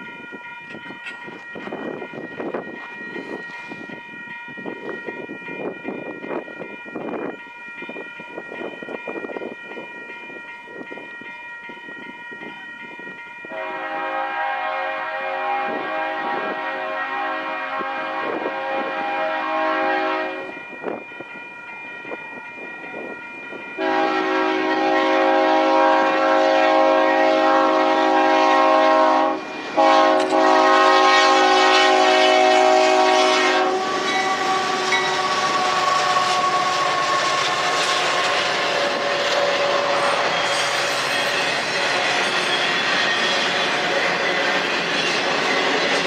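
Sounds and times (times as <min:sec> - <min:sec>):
train cars rumbling on rails: 0:00.0 - 0:46.0
locomotive air horn blasts: 0:13.5 - 0:20.6, 0:23.8 - 0:40.3.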